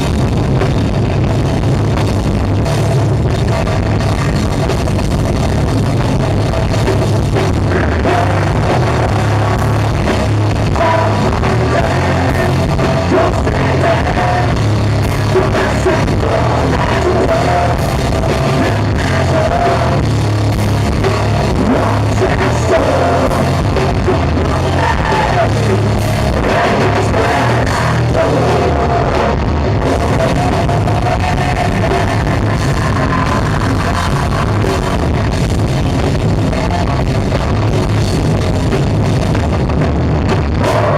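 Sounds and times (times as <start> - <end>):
drums: 0.0 - 40.9
electric guitar: 0.0 - 40.9
person singing: 7.6 - 20.2, 21.2 - 35.4, 40.5 - 40.9.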